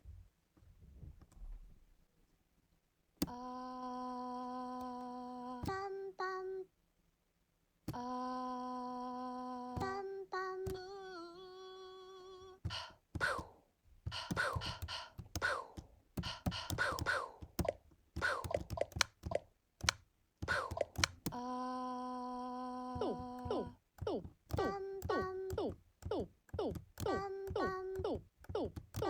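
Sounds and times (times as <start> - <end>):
sharp clicks: 12.7 - 13.5, 14.1 - 21.4, 23.0 - 29.0
hummed vocal note: 20.5 - 29.0.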